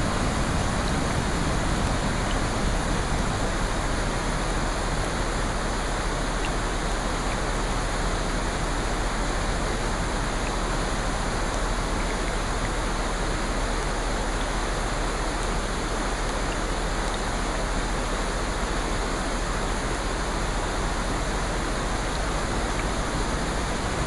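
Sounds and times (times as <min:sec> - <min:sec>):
water rushing: 0:00.0 - 0:24.0.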